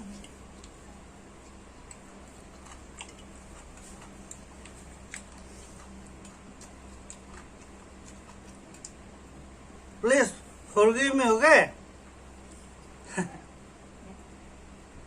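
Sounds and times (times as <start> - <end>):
low electrical hum: 0.0 - 15.0
chewing clicks and smacks: 0.1 - 0.8, 1.4 - 9.2.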